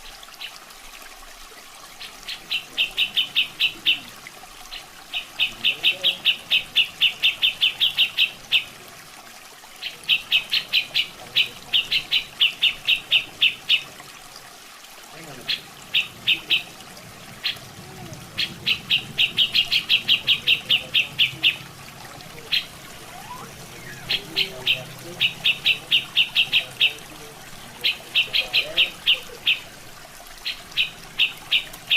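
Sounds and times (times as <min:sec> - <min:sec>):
running water: 0:00.0 - 0:31.9
bulbul calling rapid sharp notes: 0:22.5 - 0:27.2.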